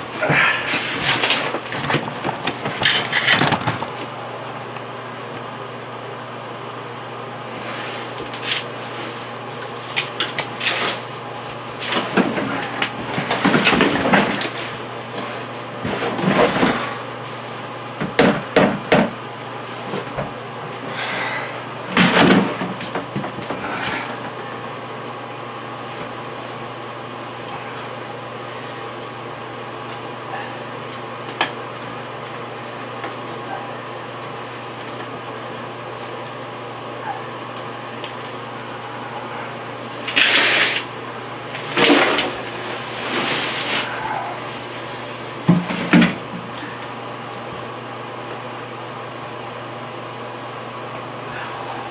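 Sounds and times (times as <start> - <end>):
steady low hum: 0.0 - 51.9
shovel scraping and dumping dirt: 40.1 - 40.9, 41.6 - 44.7.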